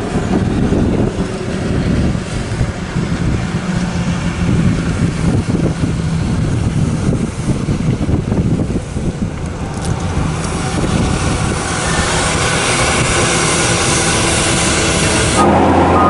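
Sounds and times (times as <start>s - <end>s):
road and wind noise: 0.0s - 16.0s
truck diesel engine running: 0.0s - 16.0s.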